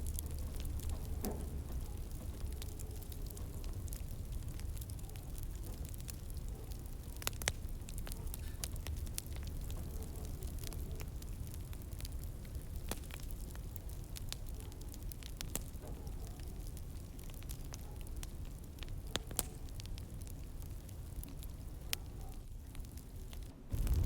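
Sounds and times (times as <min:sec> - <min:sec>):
fire crackling and popping: 0:00.0 - 0:24.0
fire flames rumbling: 0:00.0 - 0:24.0.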